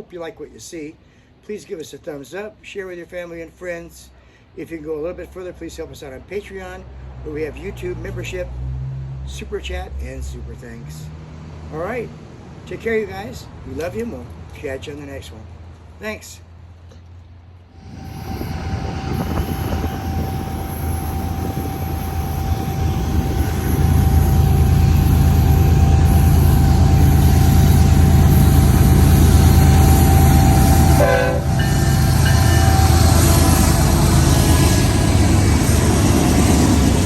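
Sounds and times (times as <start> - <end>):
diesel freight train passing: 17.7 - 37.0.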